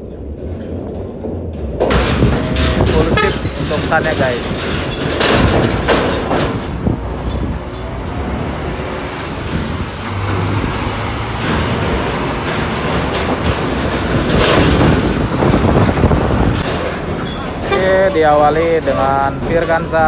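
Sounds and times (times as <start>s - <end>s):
diesel bus engine rumble: 0.0s - 20.0s
sharp clunks: 0.5s - 8.2s.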